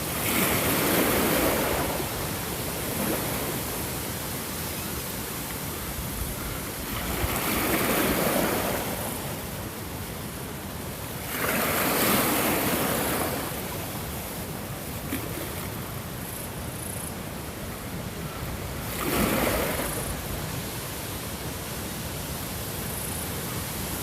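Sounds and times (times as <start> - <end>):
ocean waves washing onto shore: 0.0 - 24.0.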